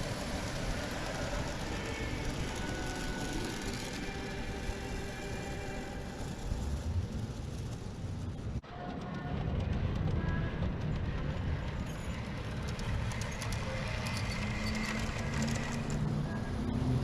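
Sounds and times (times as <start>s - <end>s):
clicking from model train track: 0.0s - 8.2s, 10.0s - 16.5s.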